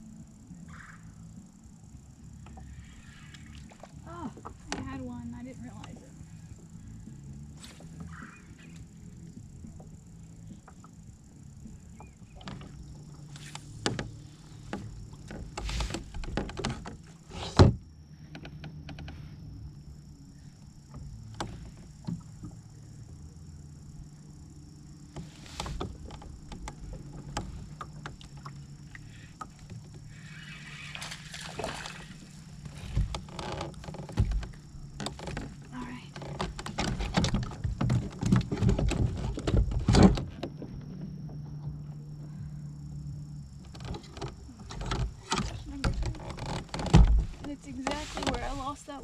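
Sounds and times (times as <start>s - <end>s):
low hum: 0.0s - 49.0s.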